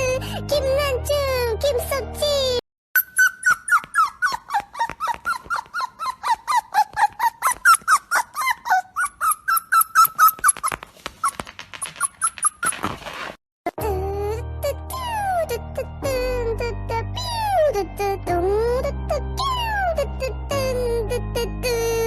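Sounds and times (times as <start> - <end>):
dog whining yips: 3.0 - 13.1.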